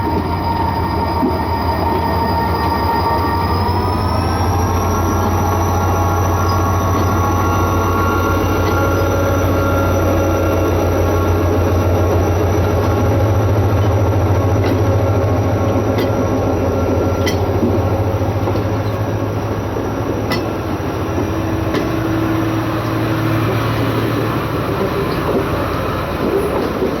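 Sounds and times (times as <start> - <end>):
train running on rails: 0.0 - 27.0.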